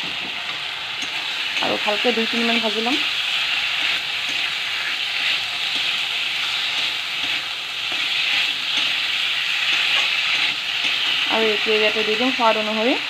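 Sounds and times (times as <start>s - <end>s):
potatoes sizzling in oil: 0.0s - 13.0s
metal spatula scraping pan: 3.2s - 11.3s.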